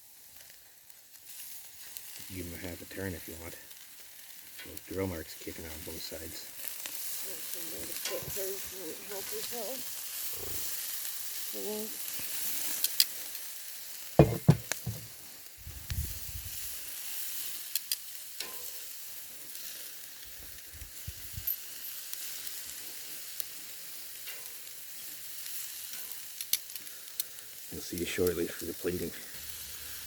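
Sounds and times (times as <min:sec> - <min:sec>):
meat sizzling on a grill: 0:00.0 - 0:30.0
loud knocks: 0:14.2 - 0:15.0
sharp pops: 0:14.2 - 0:15.2.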